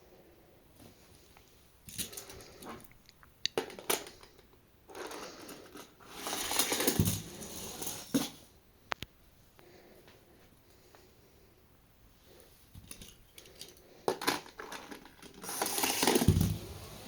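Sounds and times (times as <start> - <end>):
toy cars rolling rattle: 1.9 - 2.6, 3.6 - 8.4, 12.8 - 17.0
toy cars clicking and knocking: 1.9 - 8.4, 12.8 - 16.6.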